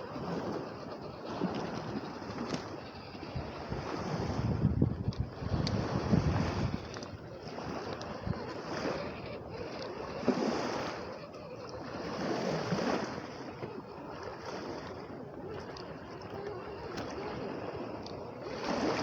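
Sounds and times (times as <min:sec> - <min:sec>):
wind gusting on microphone: 0:00.0 - 0:11.6
waves washing on shore: 0:00.0 - 0:19.0.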